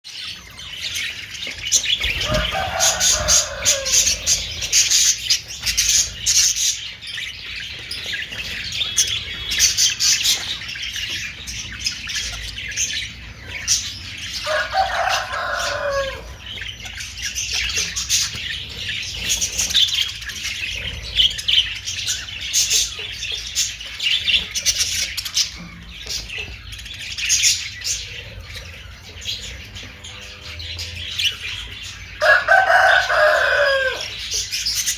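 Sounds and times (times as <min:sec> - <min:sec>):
budgerigars chattering and chirping: 0:00.1 - 0:34.9
drawn-out falling bird call: 0:02.0 - 0:05.1.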